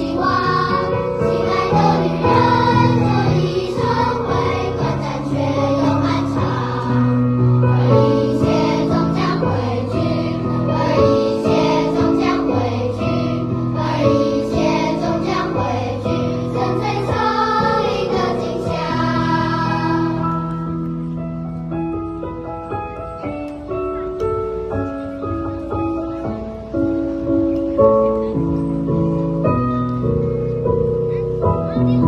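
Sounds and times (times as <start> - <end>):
children's choir singing: 0.0 - 20.9
musical accompaniment: 0.0 - 32.0.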